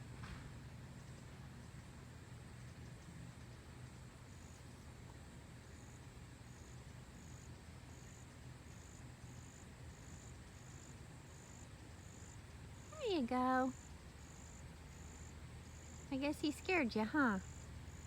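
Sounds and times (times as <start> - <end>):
low steady hum: 0.0 - 18.0
high-pitched insect chirping: 5.7 - 13.0, 13.6 - 18.0.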